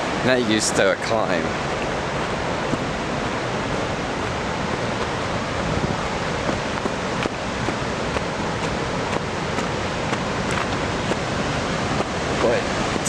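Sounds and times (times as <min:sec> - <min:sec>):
waterfall and river rushing: 0:00.0 - 0:13.0.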